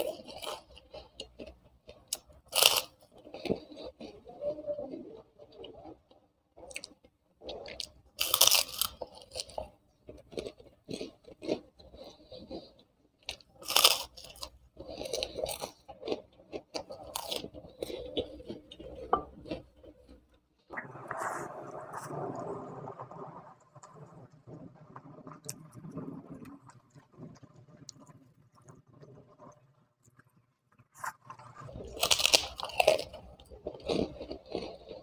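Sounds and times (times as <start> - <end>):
crunching crisp cracker: 0.0 - 20.7, 25.1 - 35.0.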